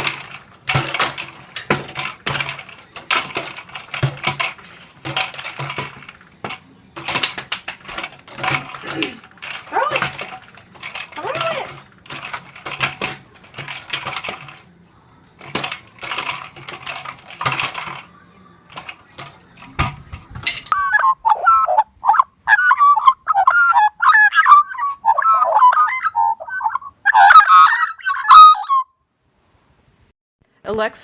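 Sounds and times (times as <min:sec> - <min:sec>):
rustling and clattering: 0:00.0 - 0:21.8
bird calling in rapid short calls: 0:20.8 - 0:28.9.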